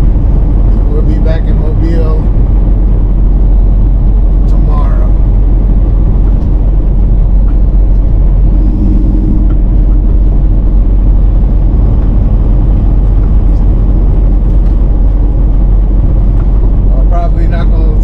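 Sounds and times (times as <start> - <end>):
truck engine rumbling: 0.0 - 18.0.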